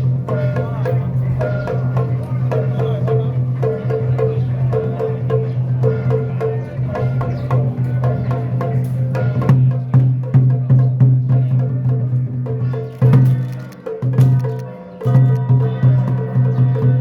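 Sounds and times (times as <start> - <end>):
sharp quick percussion strikes: 12.5 - 17.0.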